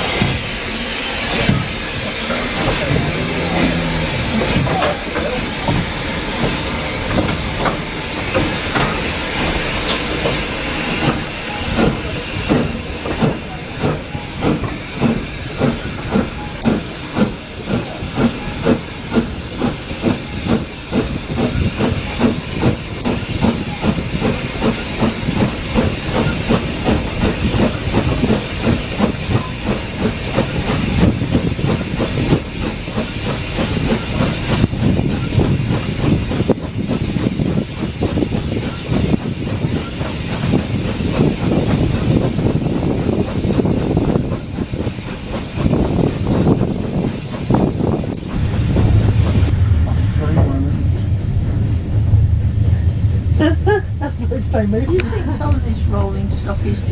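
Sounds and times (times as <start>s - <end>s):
steam hissing: 0.0s - 56.9s.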